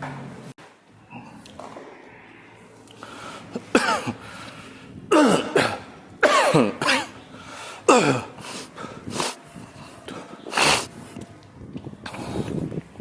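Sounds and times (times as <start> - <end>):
person coughing: 3.6 - 4.4, 5.1 - 7.2, 7.9 - 8.5.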